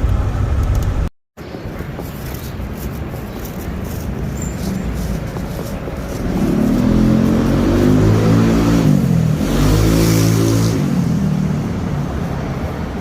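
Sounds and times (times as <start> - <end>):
vehicle engine accelerating: 4.1 - 13.0.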